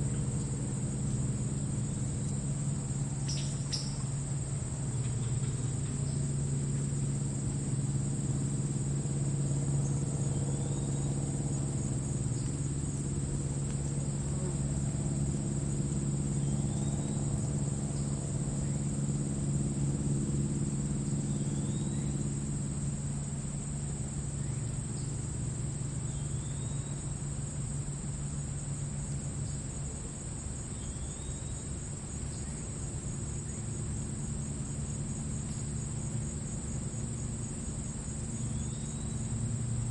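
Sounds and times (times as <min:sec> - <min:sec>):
crickets chirring in grass: 0:00.0 - 0:39.9.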